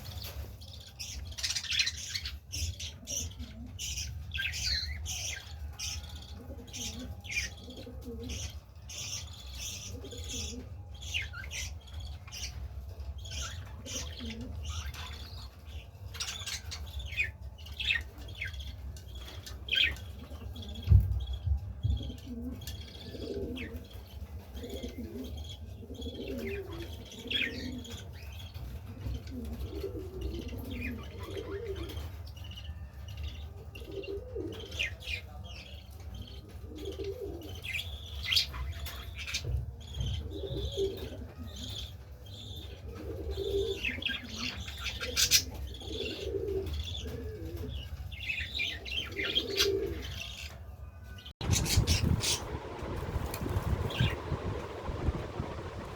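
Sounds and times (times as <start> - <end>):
pigeons cooing: 0.0 - 32.3, 33.2 - 35.4, 36.1 - 50.6, 51.4 - 55.9
small birds chirping: 0.0 - 55.9
low rumble: 51.4 - 55.9.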